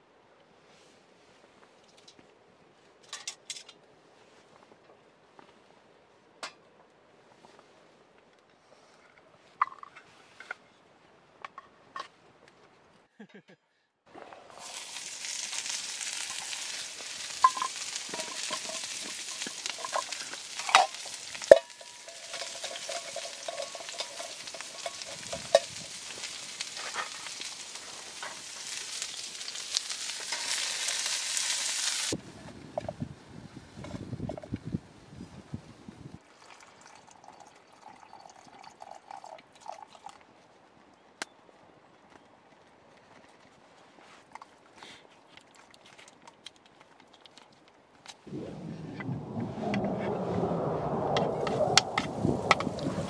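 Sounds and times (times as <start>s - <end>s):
food sizzling in a pan: 14.6s - 32.2s.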